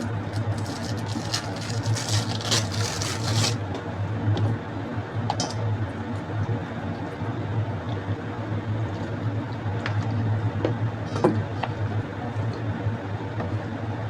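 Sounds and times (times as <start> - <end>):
rustling: 0.0 - 3.6
steady low hum: 0.0 - 14.0.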